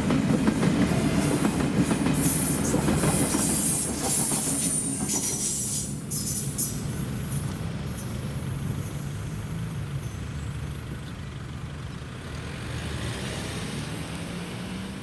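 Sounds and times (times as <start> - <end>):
vehicle engine rumble: 6.4 - 13.0.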